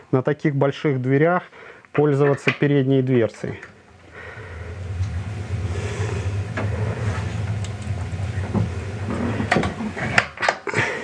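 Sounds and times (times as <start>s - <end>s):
wood fire burning in stove: 3.7s - 10.5s.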